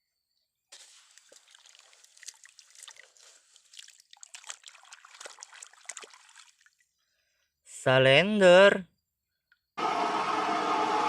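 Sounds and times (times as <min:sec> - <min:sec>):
water trickling and splashing: 0:00.7 - 0:07.0.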